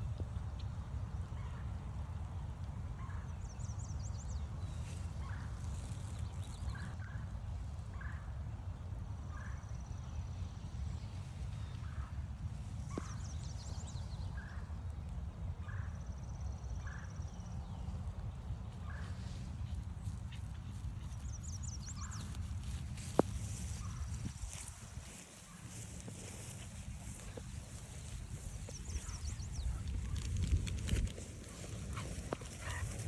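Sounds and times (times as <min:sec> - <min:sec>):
woodland birds singing: 0:18.8 - 0:33.0.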